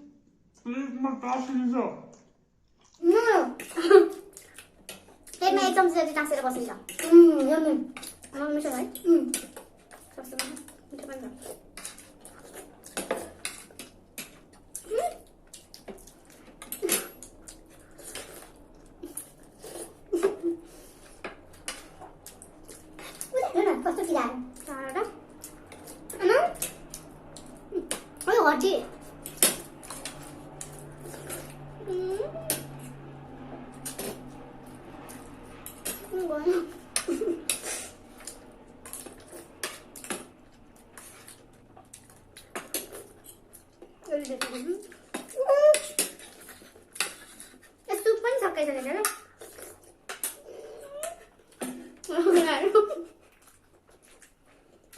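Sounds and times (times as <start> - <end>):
slurping noodles and soup: 16.0 - 23.4, 37.5 - 40.2, 40.8 - 43.9.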